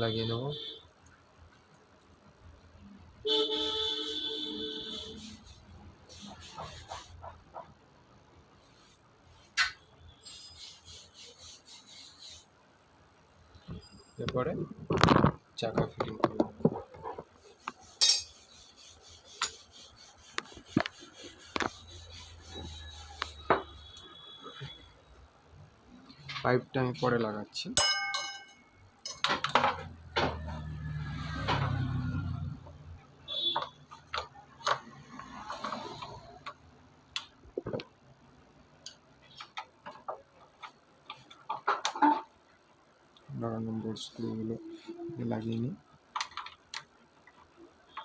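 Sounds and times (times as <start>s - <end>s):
metal parts knocking and scraping: 18.0s - 18.4s, 27.9s - 30.5s
short ringing ping: 27.8s - 28.7s.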